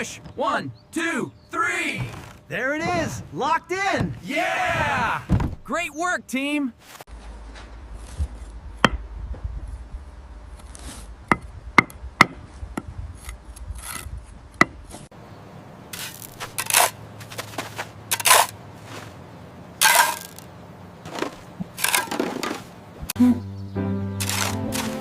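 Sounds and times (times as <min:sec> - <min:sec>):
short scraping strokes: 0:19.8 - 0:20.4.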